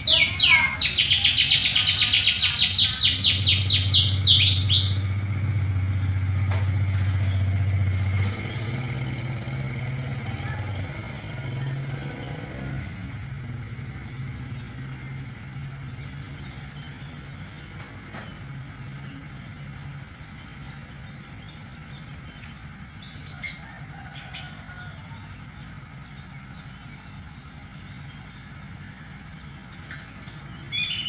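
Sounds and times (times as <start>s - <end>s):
canary chirping: 0.0s - 5.3s, 26.0s - 31.0s
low motor hum: 0.0s - 31.0s.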